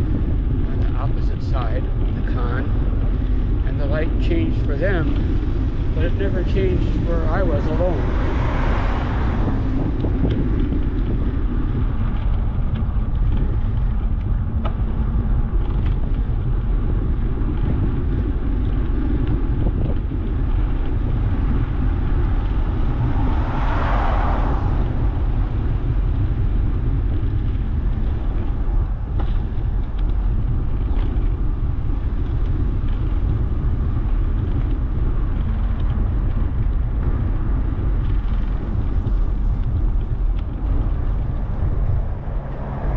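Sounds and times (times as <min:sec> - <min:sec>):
road traffic: 0:00.0 - 0:42.9
wind rumble on microphone: 0:00.0 - 0:42.9
vehicle passing: 0:04.9 - 0:12.7, 0:20.2 - 0:30.5, 0:36.5 - 0:42.9.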